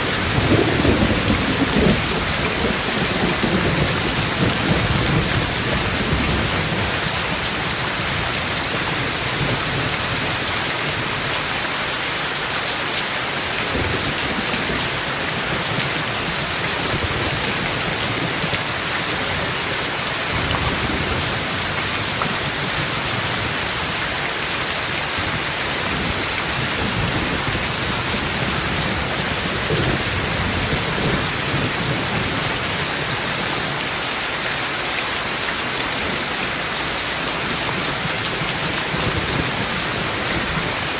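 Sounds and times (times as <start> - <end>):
thunder rumbles: 0.0 - 11.0, 25.0 - 33.7
heavy rain hiss: 0.0 - 40.9.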